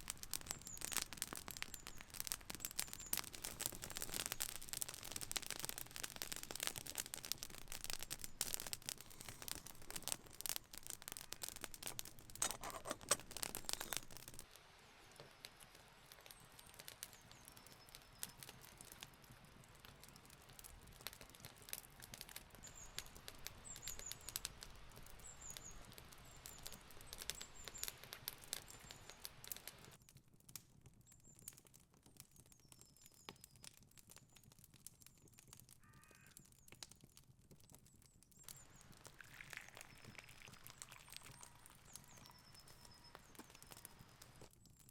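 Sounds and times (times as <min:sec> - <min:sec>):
small birds chirping: 0:00.0 - 0:14.4, 0:22.5 - 0:29.6, 0:37.9 - 0:44.5
dense fine crackling: 0:00.0 - 0:19.5, 0:38.4 - 0:44.5.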